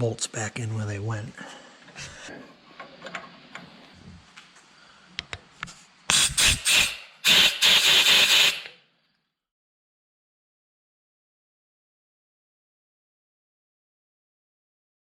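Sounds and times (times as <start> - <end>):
hissing blasts from a nozzle: 6.1 - 8.7.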